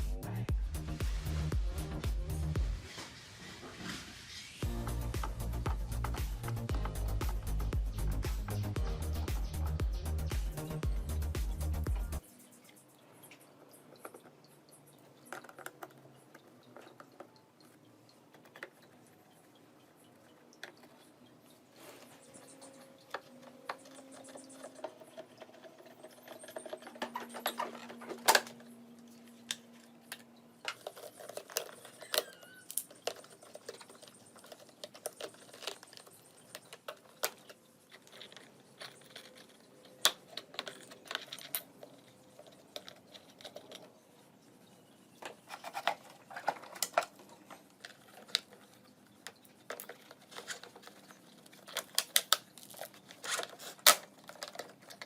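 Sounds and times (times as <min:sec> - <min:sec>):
small parts and tools clicking: 0:04.6 - 0:55.0.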